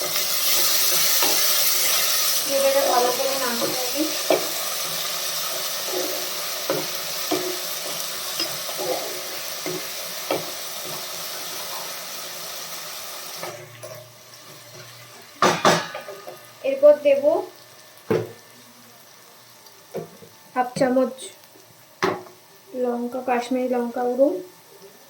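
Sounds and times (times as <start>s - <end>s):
onions sizzling in hot oil: 0.0s - 25.0s
spatula knocking against pan: 15.4s - 16.2s.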